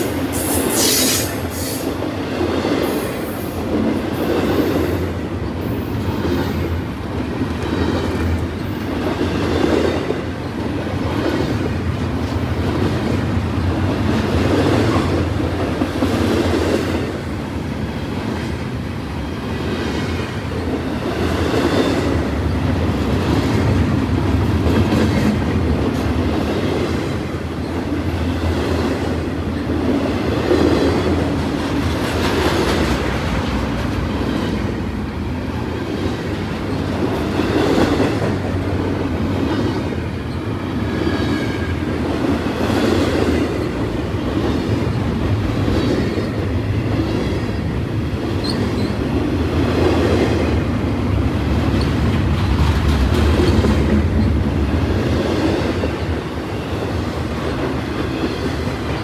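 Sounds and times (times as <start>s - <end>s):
train wheels rolling on rail: 0.0s - 59.0s
clacking over rail joints: 51.6s - 56.3s.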